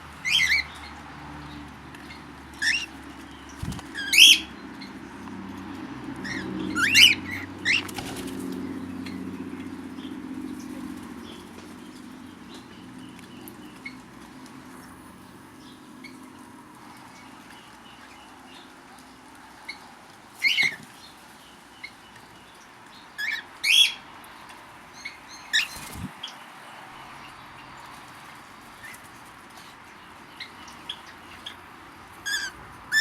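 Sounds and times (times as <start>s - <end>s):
bird wing flutters: 3.6s - 4.1s, 7.8s - 8.6s, 25.6s - 26.2s.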